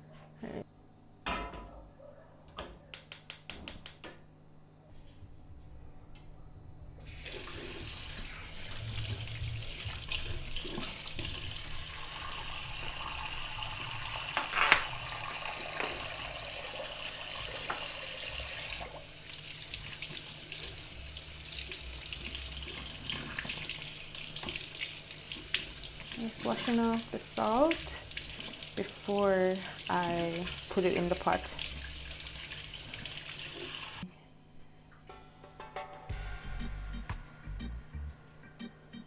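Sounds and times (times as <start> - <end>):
tap running into a sink: 7.1 - 28.9.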